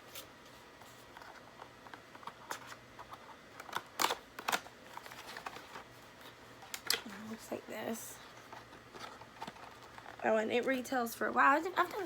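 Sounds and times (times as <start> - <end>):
packaging clicks and crinkles: 1.0 - 7.5, 8.2 - 10.2
loud packaging clicks: 3.5 - 5.8.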